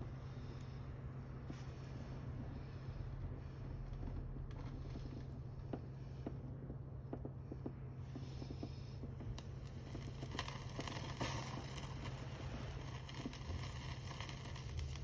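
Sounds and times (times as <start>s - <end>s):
wood fire crackling and popping: 0.0s - 15.0s
steady hiss: 8.0s - 15.0s.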